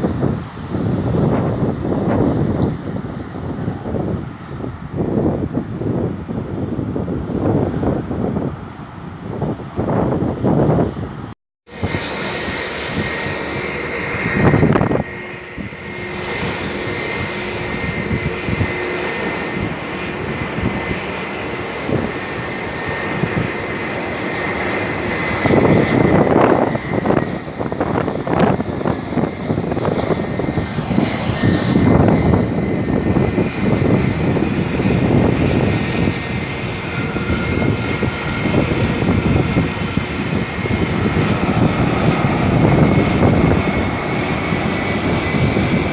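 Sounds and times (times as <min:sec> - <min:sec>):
aircraft engines roaring: 0:00.0 - 0:45.9
high whine: 0:11.7 - 0:45.9.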